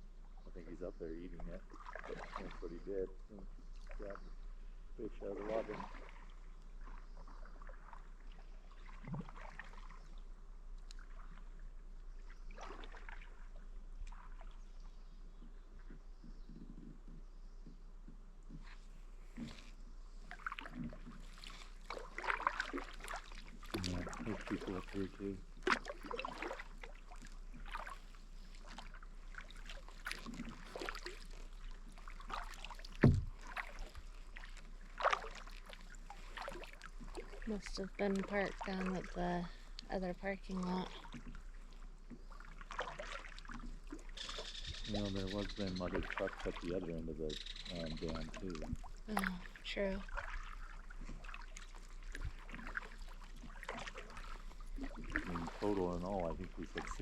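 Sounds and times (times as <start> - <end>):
kayak paddle splashing: 0.0 - 16.4, 18.4 - 57.0
soft knock: 33.0 - 33.4
dull thump: 33.0 - 33.6.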